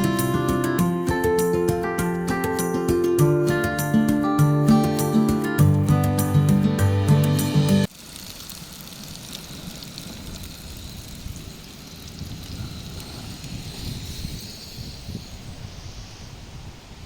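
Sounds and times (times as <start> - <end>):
wind hiss and rustling: 0.0 - 5.5, 7.8 - 17.0
acoustic guitar music: 0.0 - 7.9
faint high steady whine: 8.0 - 17.0.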